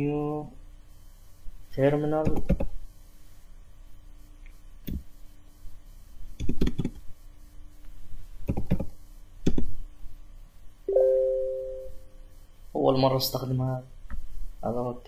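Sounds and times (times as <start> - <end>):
computer keyboard and mouse clicks: 2.2 - 2.7, 6.4 - 7.0, 8.4 - 9.7.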